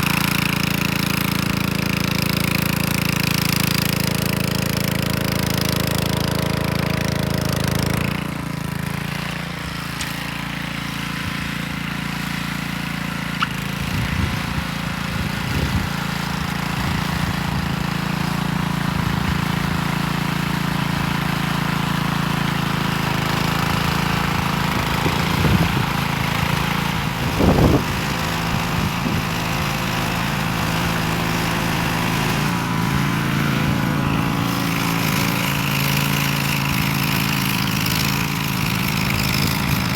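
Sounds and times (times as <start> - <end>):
tiller engine running: 0.0 - 39.9.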